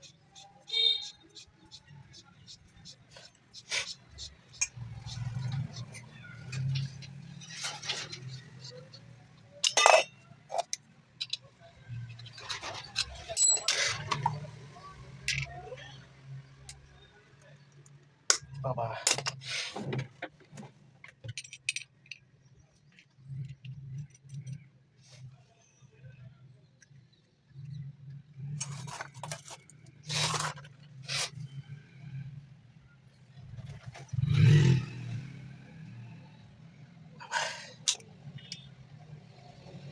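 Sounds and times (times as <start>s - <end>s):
metal jar clinking: 3.8s - 11.4s, 12.3s - 14.4s.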